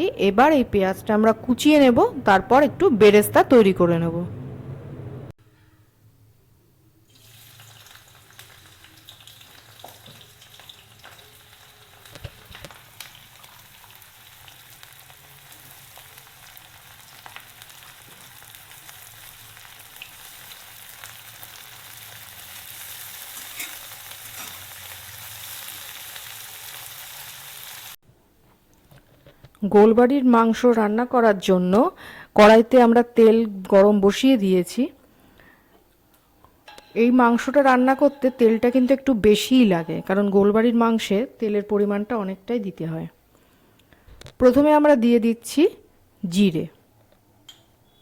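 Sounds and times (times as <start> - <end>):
food sizzling in hot oil: 7.1 - 28.0.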